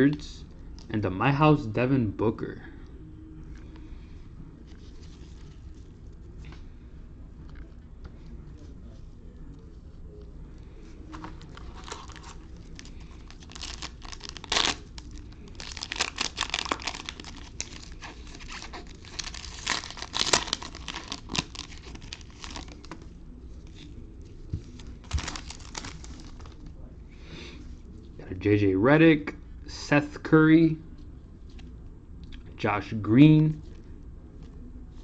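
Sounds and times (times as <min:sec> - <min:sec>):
card pack wrapper crinkling: 0:11.1 - 0:23.0, 0:24.7 - 0:26.7.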